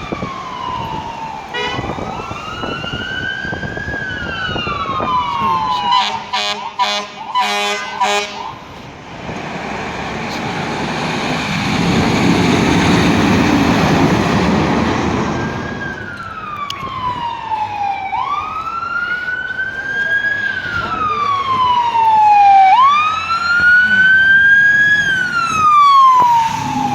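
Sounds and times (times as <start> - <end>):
siren wail: 0.0 - 8.7, 10.3 - 26.9
fire truck engine and road noise: 0.0 - 26.9
air horn blasts: 1.5 - 2.0, 5.8 - 8.5.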